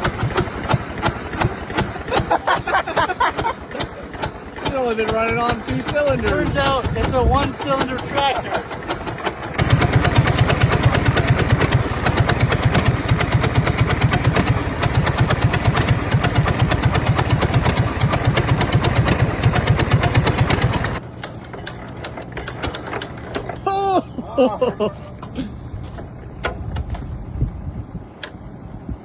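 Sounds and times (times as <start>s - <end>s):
tractor engine running: 0.0s - 29.0s.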